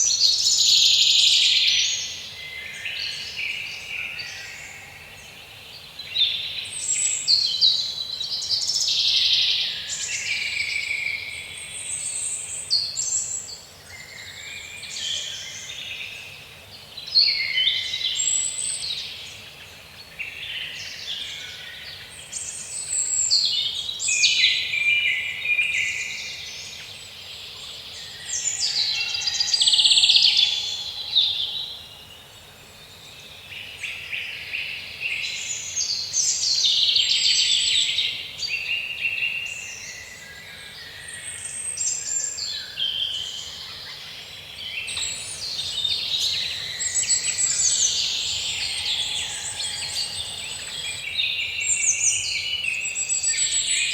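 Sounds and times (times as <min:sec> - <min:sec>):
songbirds singing and chirping: 0:00.0 - 0:53.9.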